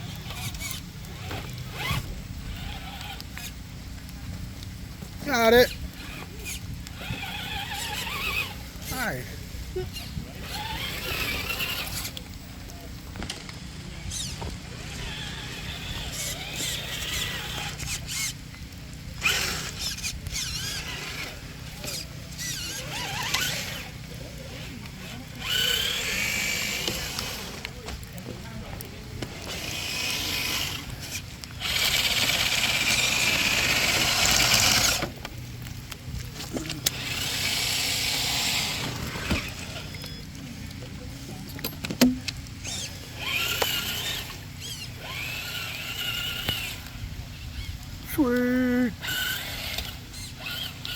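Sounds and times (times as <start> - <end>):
electric motor whining: 0.0 - 50.9
high wavering squeaks: 36.9 - 40.3, 42.6 - 47.8.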